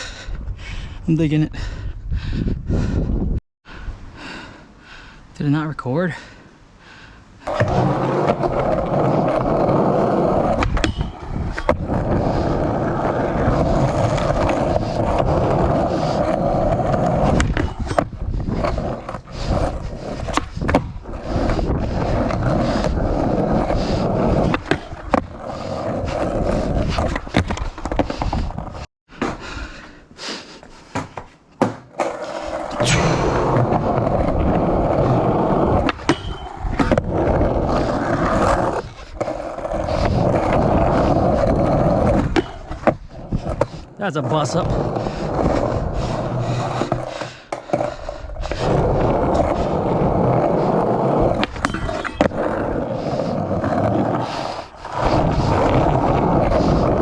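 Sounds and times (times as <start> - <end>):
skateboard clacking: 7.4 - 21.0, 30.9 - 45.0, 50.7 - 57.0
skateboard wheels rolling: 7.4 - 57.0.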